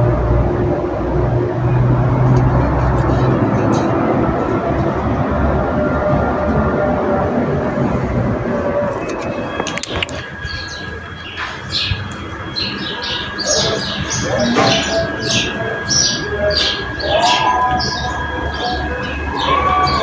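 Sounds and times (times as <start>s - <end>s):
songbirds chirping: 0.0s - 20.0s
lower bird calls: 9.0s - 20.0s.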